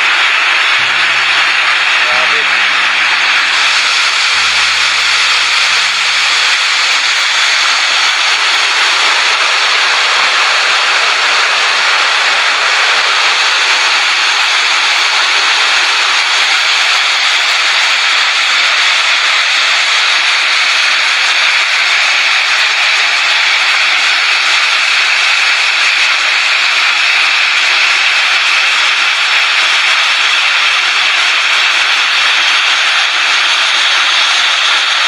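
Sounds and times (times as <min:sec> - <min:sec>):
storm wind rushing: 0:02.5 - 0:16.2.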